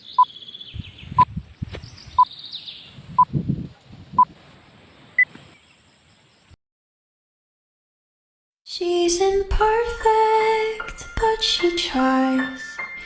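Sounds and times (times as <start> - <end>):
small birds chirping: 0.0 - 6.6.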